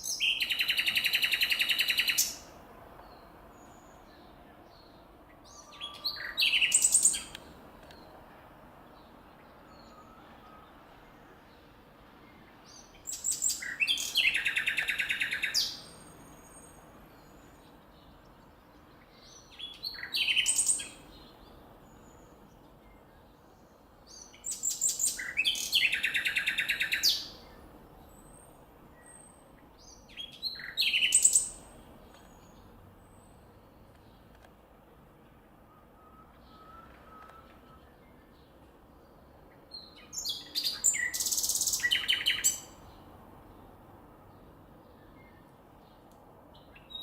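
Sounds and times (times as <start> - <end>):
nightingale singing: 0.0 - 4.2, 4.8 - 8.1, 12.7 - 18.1, 18.9 - 32.7, 39.5 - 43.0.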